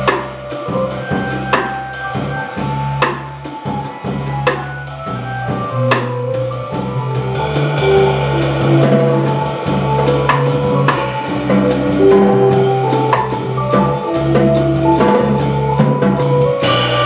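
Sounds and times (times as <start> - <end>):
drum kit keeping time: 0.0 - 17.0
jazz organ playing chords: 0.0 - 17.0
cymbal crashes: 6.9 - 14.2, 16.6 - 17.0.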